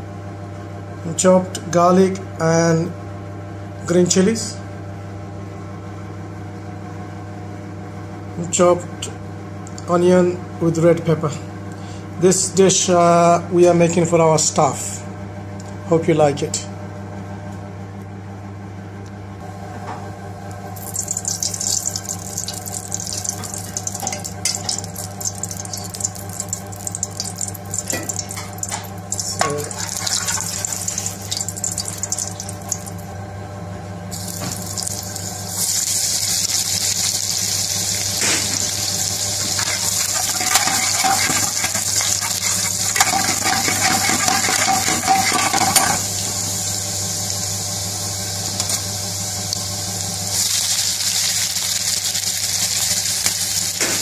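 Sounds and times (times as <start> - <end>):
steady low hum: 0.0 - 50.5
oil crackling and sizzling in a wok: 20.8 - 33.0, 34.1 - 54.0
metal spoon stirring: 39.4 - 46.0.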